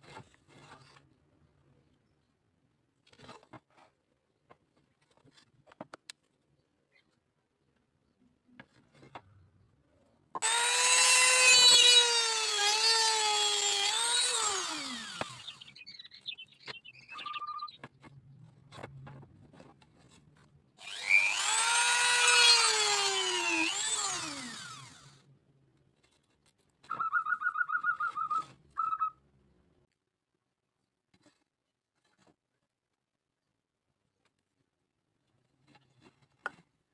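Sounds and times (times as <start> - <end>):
electric drill whining: 10.4 - 15.8, 20.8 - 25.3.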